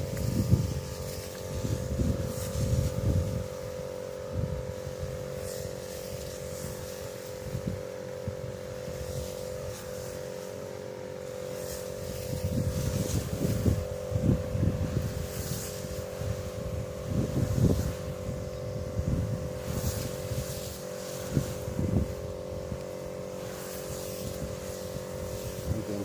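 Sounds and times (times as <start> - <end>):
wind buffeting microphone: 0.0 - 5.3, 12.0 - 20.5, 21.2 - 22.8
small engine droning: 0.0 - 26.0.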